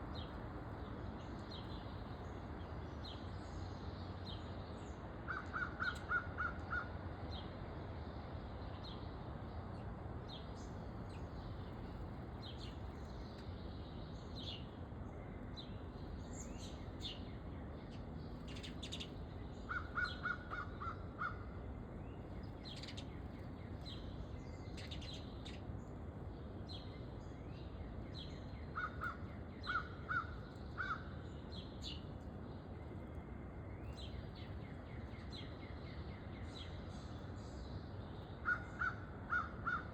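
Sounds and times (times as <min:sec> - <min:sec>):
steady background noise: 0:00.0 - 0:39.9
harsh repeated bird calls: 0:05.2 - 0:07.0, 0:18.5 - 0:21.8, 0:27.7 - 0:32.1, 0:38.2 - 0:39.9
birds chirping: 0:08.6 - 0:39.9.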